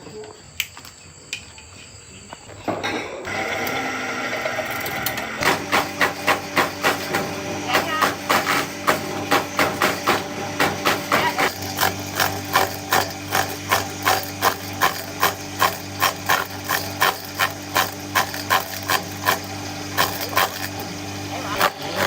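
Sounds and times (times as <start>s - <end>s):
motor hum: 3.3s - 22.0s.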